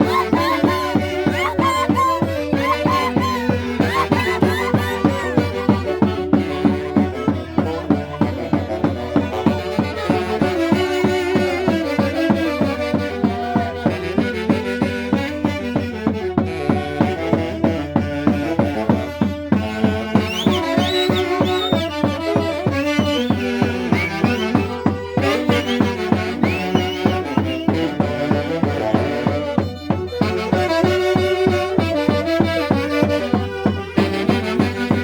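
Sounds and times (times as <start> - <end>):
band playing dance music: 0.0 - 9.8, 22.6 - 27.8.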